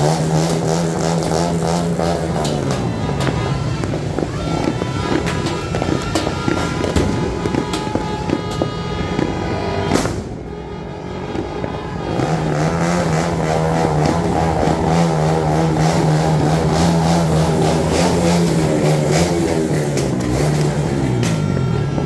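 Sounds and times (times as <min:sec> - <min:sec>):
sharp crackling pops: 0:00.0 - 0:10.5
vehicle engine revving: 0:00.0 - 0:22.0.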